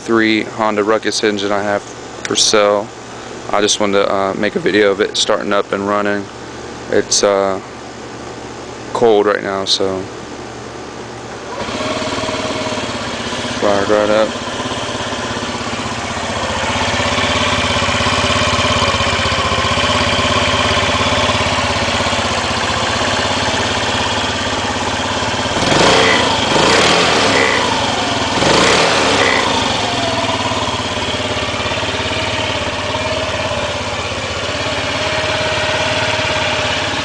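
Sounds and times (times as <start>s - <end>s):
scooter engine idling: 11.5s - 37.0s.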